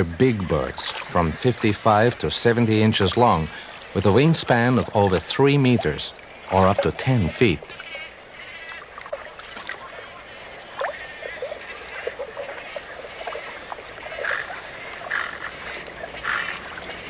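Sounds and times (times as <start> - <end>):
steady hiss: 0.0 - 17.0
chorus of short animal calls: 3.5 - 16.7.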